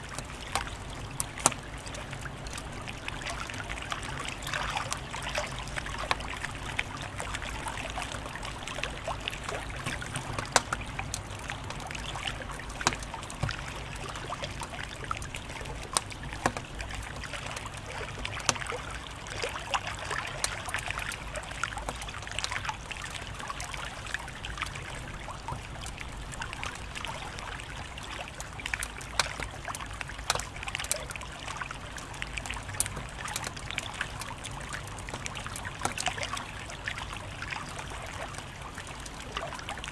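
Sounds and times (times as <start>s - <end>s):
wood fire crackling: 5.7s - 36.0s.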